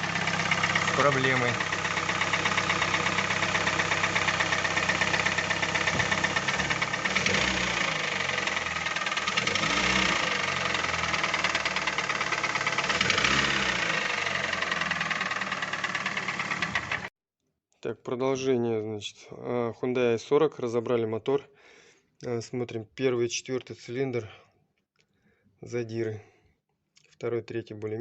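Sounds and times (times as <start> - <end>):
car engine knocking: 0.0 - 17.1.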